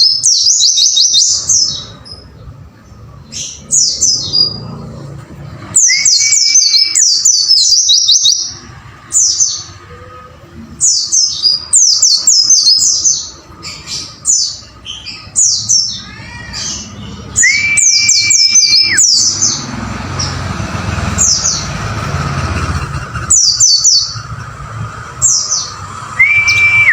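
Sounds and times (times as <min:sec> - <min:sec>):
long level bird whistle: 0:00.0 - 0:01.9, 0:05.8 - 0:08.6, 0:17.3 - 0:19.5, 0:25.2 - 0:26.9
high falling bird chirps: 0:10.9 - 0:26.9.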